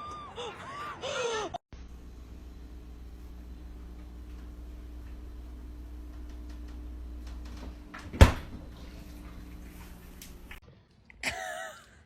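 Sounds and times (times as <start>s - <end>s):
steady low hum: 1.7s - 10.6s.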